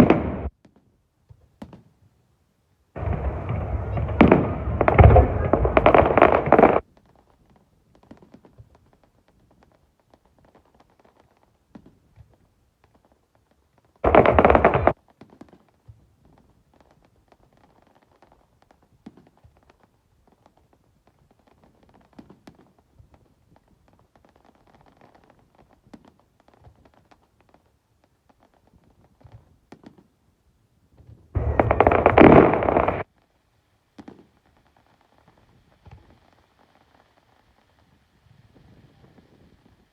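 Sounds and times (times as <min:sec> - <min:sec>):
loud fireworks bursts: 0:00.0 - 0:00.5, 0:03.0 - 0:06.8, 0:14.0 - 0:15.0, 0:31.4 - 0:33.0
faint fireworks pops and crackles: 0:00.0 - 0:39.9.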